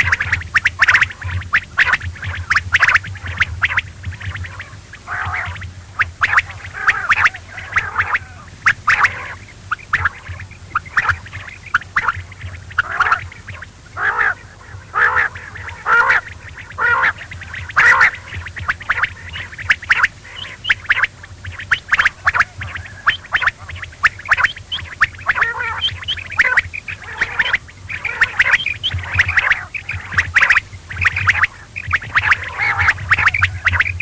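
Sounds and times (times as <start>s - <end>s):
quail calling: 0.0s - 34.0s
steady low hum: 0.0s - 34.0s.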